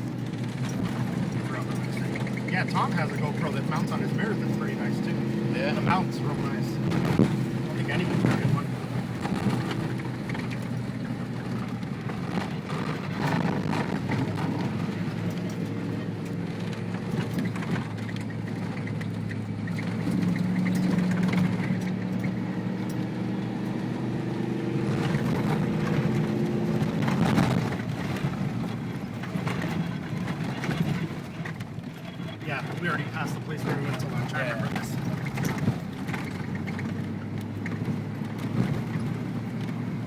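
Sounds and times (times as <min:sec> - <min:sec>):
engine drone: 0:00.0 - 0:40.0
knocks and rattles from bumps: 0:00.0 - 0:40.0
road noise: 0:00.0 - 0:40.0.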